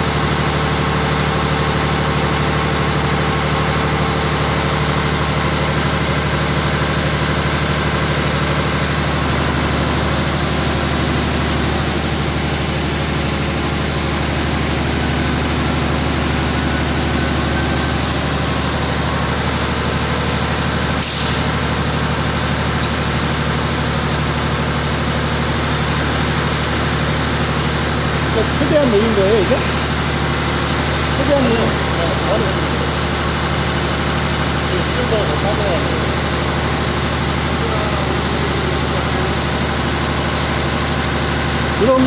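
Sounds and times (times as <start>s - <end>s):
diesel engine running: 0.0s - 42.0s
short hiss: 21.0s - 21.5s.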